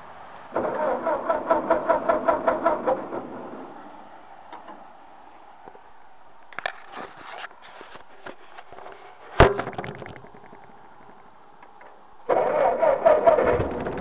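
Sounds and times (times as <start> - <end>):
tractor engine cranking: 0.5 - 3.8, 10.1 - 14.0.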